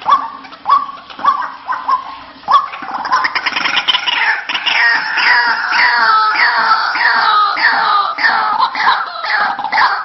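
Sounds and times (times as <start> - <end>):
bird calling falling notes: 0.0 - 10.0.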